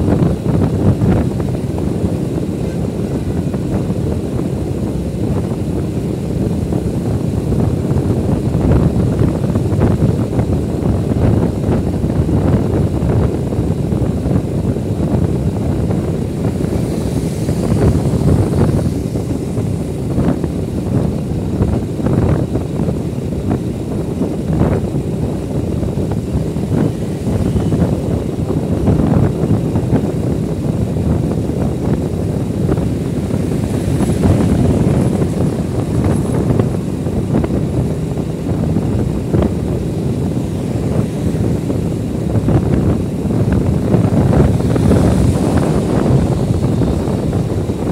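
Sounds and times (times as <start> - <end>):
motorcycle engine rumble: 0.0 - 47.9
wind buffeting microphone: 0.0 - 47.9.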